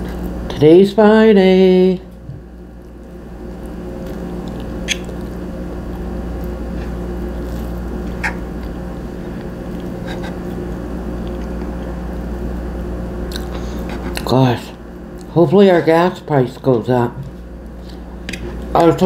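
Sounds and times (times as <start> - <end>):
steady low hum: 0.0 - 19.0
person chewing: 2.8 - 12.2, 13.2 - 14.3.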